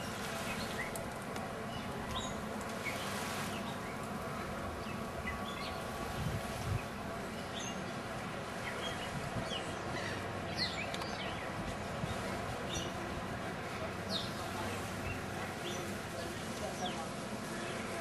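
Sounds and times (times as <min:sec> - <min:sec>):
small birds chirping: 0:08.6 - 0:11.6.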